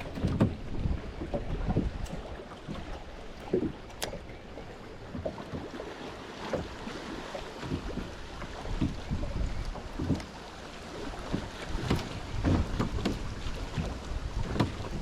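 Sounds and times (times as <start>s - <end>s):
wind buffeting microphone: 0.0s - 5.2s, 7.8s - 10.2s.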